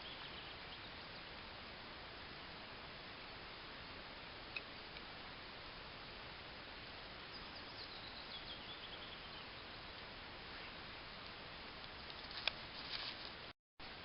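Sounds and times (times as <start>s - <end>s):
songbird chirping: 0.0s - 2.2s, 7.0s - 12.6s
steady hiss: 0.0s - 14.0s.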